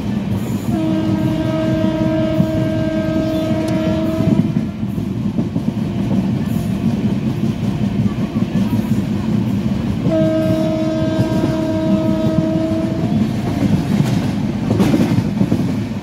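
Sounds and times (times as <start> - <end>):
train rumbling and rattling on rails: 0.0 - 16.0
train horn blast: 0.6 - 4.8, 10.0 - 13.5.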